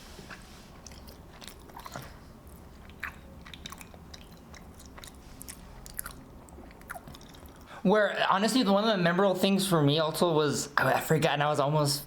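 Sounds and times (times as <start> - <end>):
person chewing food: 0.1 - 7.8
wet mouth clicks: 0.9 - 7.7.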